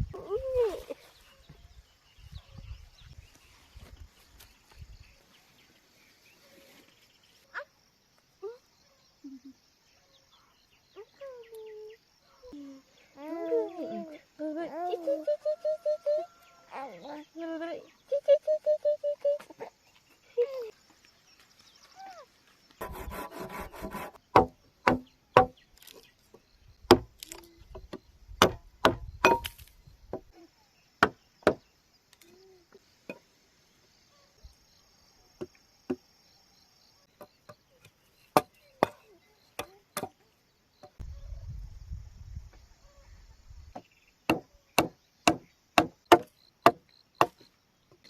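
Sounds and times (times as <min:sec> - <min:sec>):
faint insect drone: 0:00.0 - 0:48.0
chopping strikes on bamboo: 0:24.3 - 0:25.9, 0:26.9 - 0:30.2, 0:31.0 - 0:31.6, 0:44.3 - 0:47.4.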